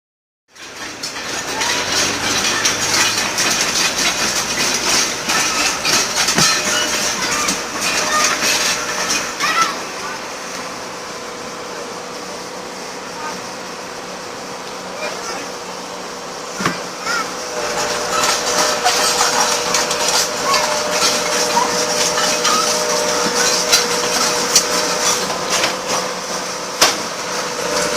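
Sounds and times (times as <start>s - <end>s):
metal wheel scraping on concrete: 0.5s - 10.7s, 17.4s - 27.9s
engine drone: 0.5s - 27.9s.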